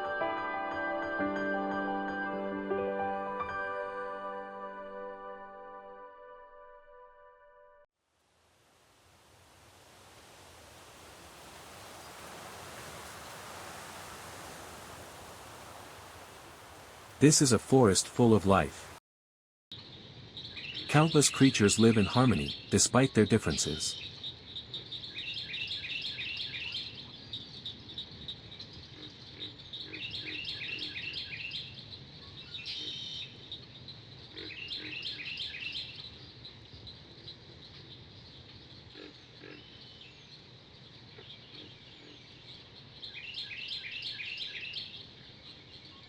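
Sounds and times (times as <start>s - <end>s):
low background hiss: 8.2s - 19.0s.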